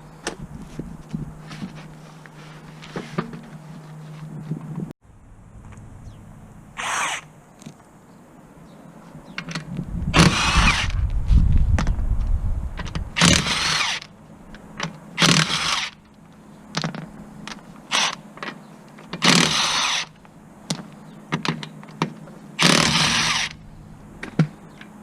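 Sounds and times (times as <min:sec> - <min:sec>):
power tool bursts: 0:06.8 - 0:07.3, 0:10.2 - 0:11.0, 0:13.2 - 0:14.1, 0:15.2 - 0:16.0, 0:19.2 - 0:20.1, 0:22.6 - 0:23.6
low rumble: 0:09.7 - 0:13.2.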